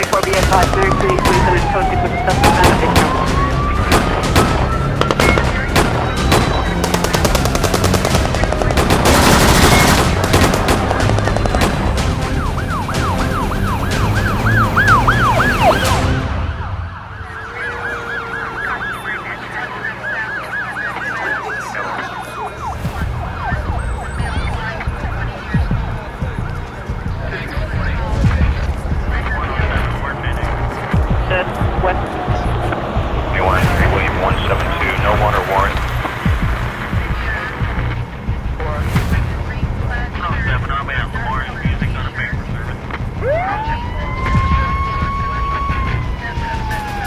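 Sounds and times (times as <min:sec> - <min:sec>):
rapid gunfire: 0:00.0 - 0:16.2, 0:33.3 - 0:38.0
police siren: 0:00.0 - 0:39.2, 0:40.3 - 0:47.0
low vehicle engine rumble: 0:00.0 - 0:47.0.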